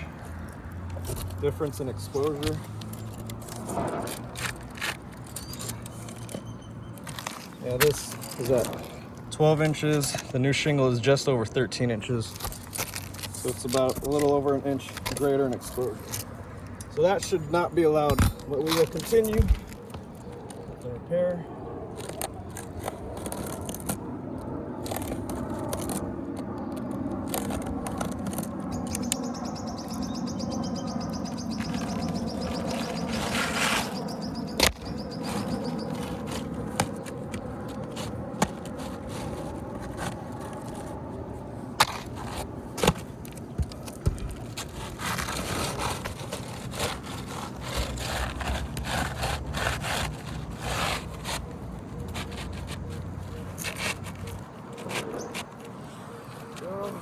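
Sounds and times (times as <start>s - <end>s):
roofing shingles scraping: 12.0s - 16.4s, 17.0s - 20.3s, 22.0s - 24.1s, 24.8s - 29.2s, 31.2s - 57.0s.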